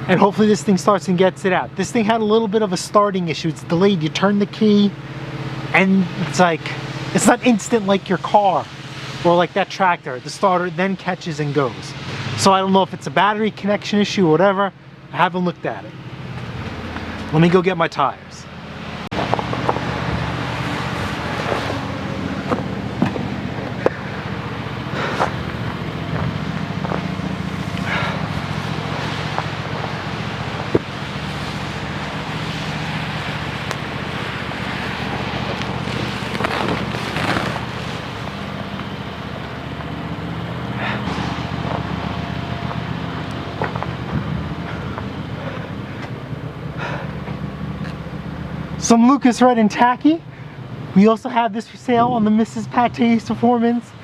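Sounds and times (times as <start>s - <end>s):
engine running steadily: 0.0s - 51.0s
knocks and clanks: 22.4s - 24.0s.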